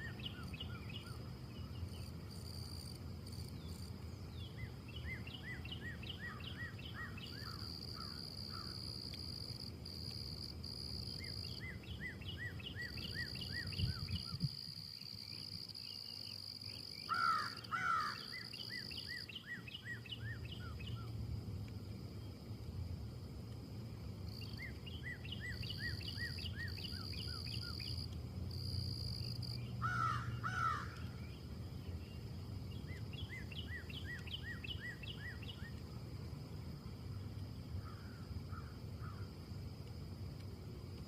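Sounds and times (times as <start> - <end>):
songbird singing: 0.0 - 22.6, 24.2 - 39.4
high insect drone: 0.0 - 41.0
low wind rumble: 11.6 - 15.7, 20.0 - 41.0.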